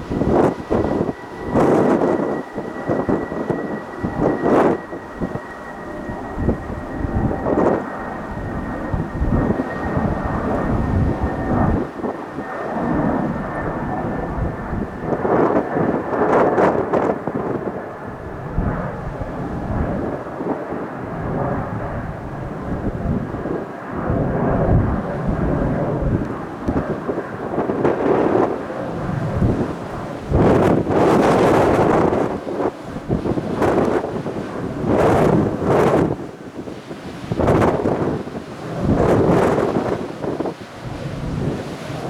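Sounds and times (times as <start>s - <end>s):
high engine whine: 0.0s - 36.4s
jet engines rumbling: 0.0s - 42.0s.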